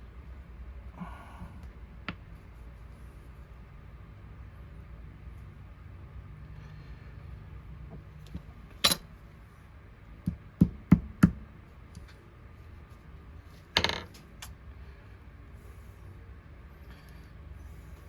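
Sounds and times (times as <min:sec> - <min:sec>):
small hard knocks and taps: 0:10.2 - 0:11.4.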